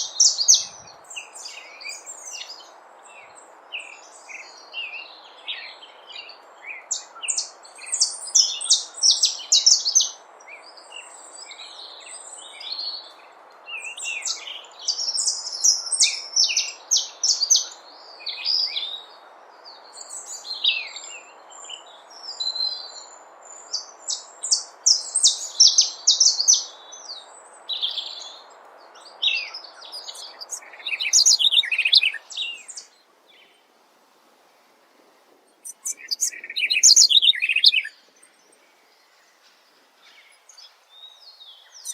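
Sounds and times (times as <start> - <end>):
birds chirping and trilling: 0.0 - 33.7, 35.4 - 41.9
steady background hiss: 0.0 - 41.9.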